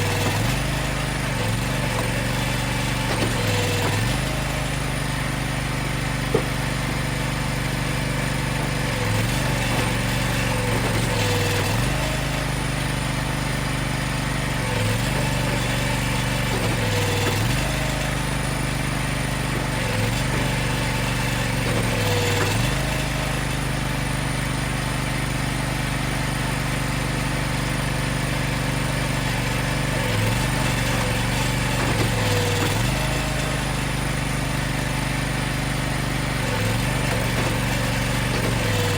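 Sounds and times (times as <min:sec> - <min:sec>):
machine engine running: 0:00.0 - 0:38.9.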